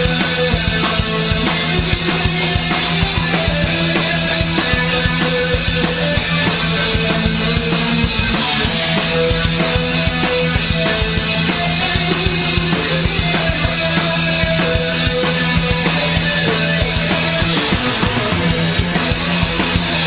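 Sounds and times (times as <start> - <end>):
punk rock band playing: 0.0 - 20.0.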